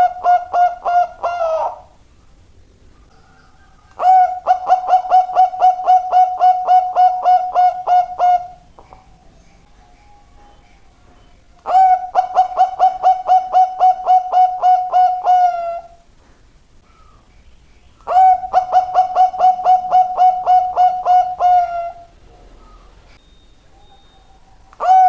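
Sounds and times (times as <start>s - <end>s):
dove cooing: 0.0s - 16.1s, 16.9s - 25.0s.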